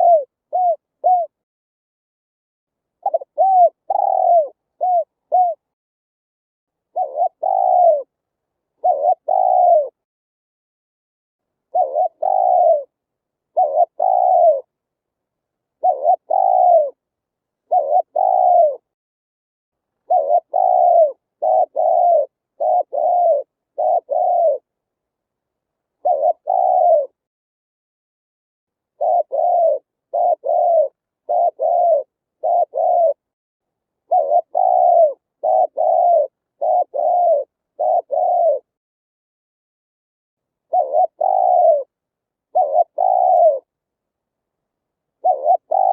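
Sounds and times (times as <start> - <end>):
dove cooing: 0.0 - 1.4, 3.0 - 5.7, 6.9 - 8.2, 8.8 - 10.0, 11.7 - 14.7, 15.8 - 17.0, 17.6 - 18.9, 20.0 - 24.7, 26.0 - 27.2, 28.9 - 33.3, 34.0 - 38.8, 40.7 - 43.7, 45.2 - 45.9.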